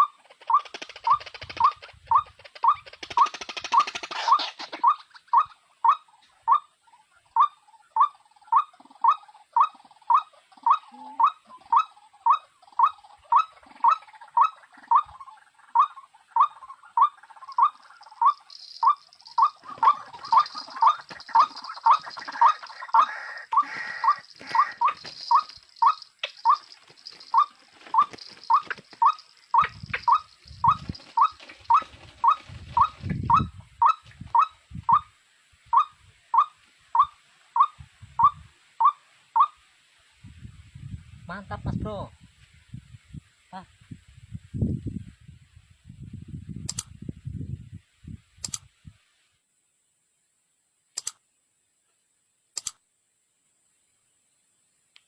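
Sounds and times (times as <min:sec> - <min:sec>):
bird call repeating: 0:15.8 - 0:35.1.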